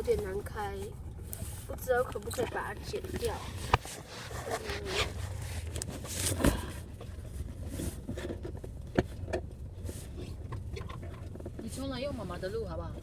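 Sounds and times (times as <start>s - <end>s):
low car interior hum: 0.0s - 13.0s
cardboard box rustling: 1.4s - 8.7s.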